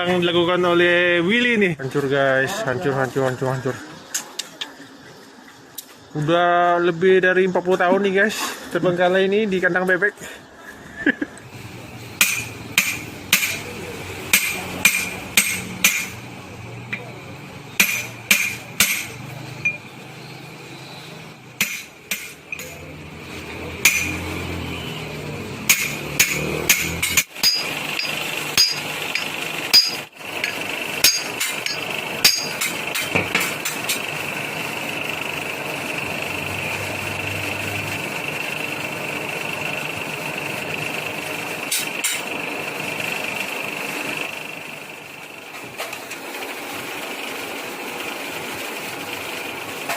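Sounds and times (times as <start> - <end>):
hammer striking metal: 12.2 - 13.7, 14.3 - 16.2, 17.8 - 19.8, 21.6 - 22.8, 23.8 - 24.3, 25.6 - 34.0
steady hum: 24.9 - 39.3.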